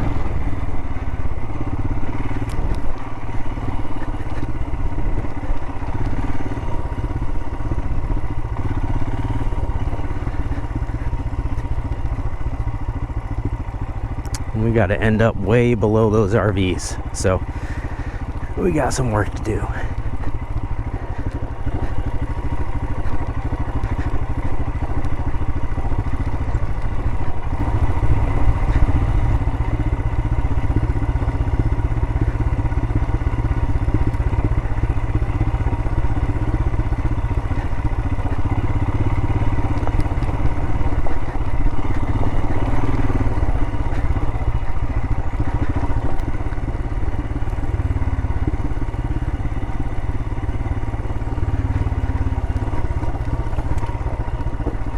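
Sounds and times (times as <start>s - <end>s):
clatter: 0.0s - 14.5s, 19.9s - 54.9s
motorcycle engine running: 0.0s - 54.9s.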